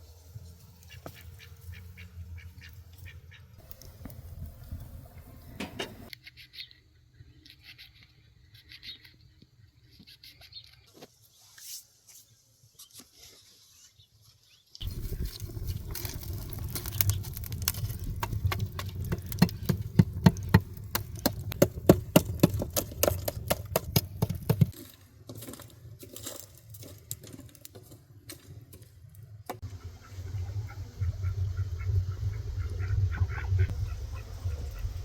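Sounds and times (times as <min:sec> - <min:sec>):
low rumble: 0:14.8 - 0:24.7, 0:29.6 - 0:35.0
sharp clicks and knocks: 0:16.5 - 0:24.8.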